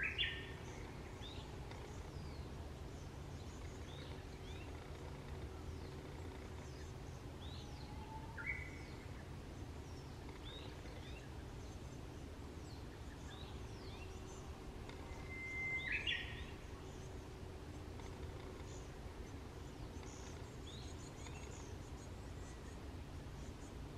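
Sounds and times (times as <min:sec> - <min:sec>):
birds chirping: 0:00.0 - 0:23.9
low outdoor rumble: 0:00.0 - 0:23.9
bird whistle: 0:15.2 - 0:16.4.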